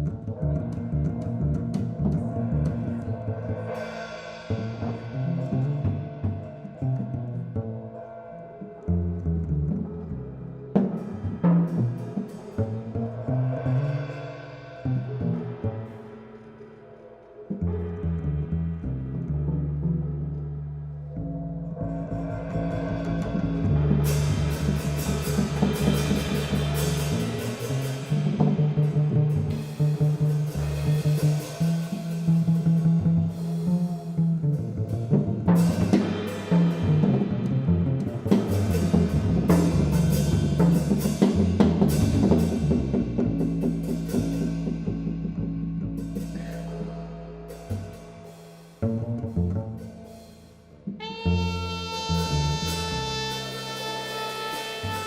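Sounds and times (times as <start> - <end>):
drum kit: 0.0 - 16.1, 22.1 - 55.0
double bass low notes: 0.0 - 55.0
cymbals struck quickly: 22.6 - 34.2.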